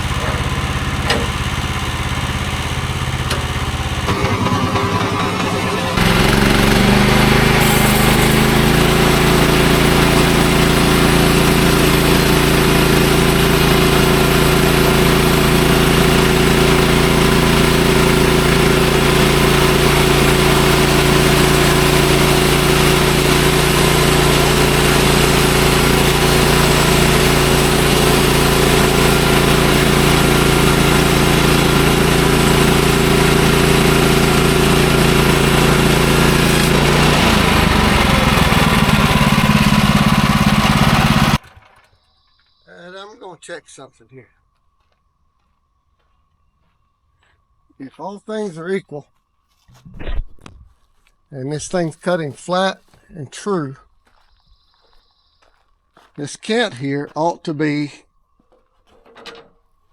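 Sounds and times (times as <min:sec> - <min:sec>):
sawmill engine running steadily: 0:00.0 - 0:41.8.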